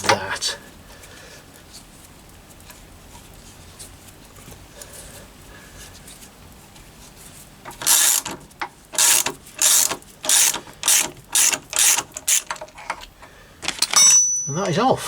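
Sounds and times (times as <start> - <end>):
ratchet spanner clicking: 7.7 - 8.4, 9.0 - 14.0.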